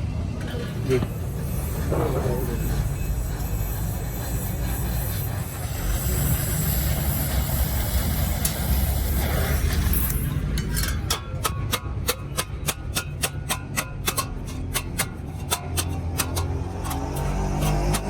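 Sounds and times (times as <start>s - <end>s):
hammer striking metal: 8.2s - 18.0s.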